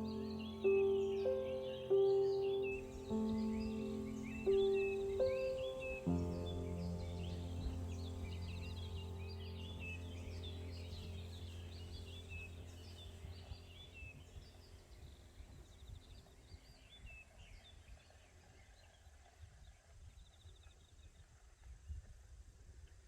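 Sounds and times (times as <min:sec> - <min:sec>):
bird trills: 0:00.0 - 0:14.7
low hum: 0:00.0 - 0:16.1
small birds chirping: 0:00.0 - 0:22.0.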